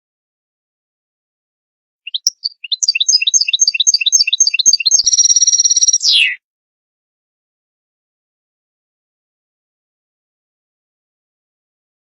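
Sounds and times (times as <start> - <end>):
goldfinch chirping: 2.1 - 6.4.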